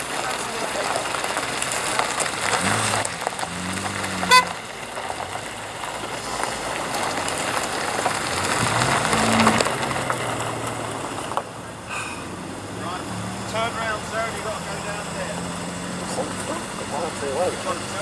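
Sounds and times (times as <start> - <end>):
cars driving past: 0.0 - 18.0
short car horn toot: 4.2 - 4.6.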